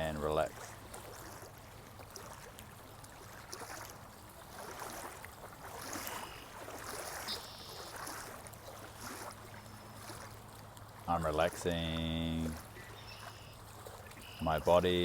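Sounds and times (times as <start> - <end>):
rushing stream: 0.0 - 15.0
high bird calls: 6.1 - 6.6, 7.2 - 8.0, 12.7 - 14.7.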